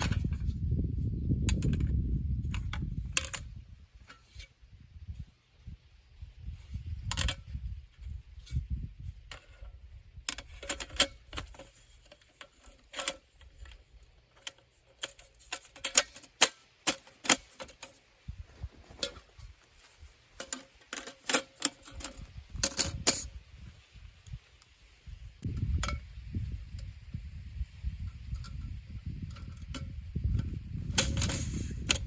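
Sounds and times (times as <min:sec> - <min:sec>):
low steady rumble: 0:22.2 - 0:32.0.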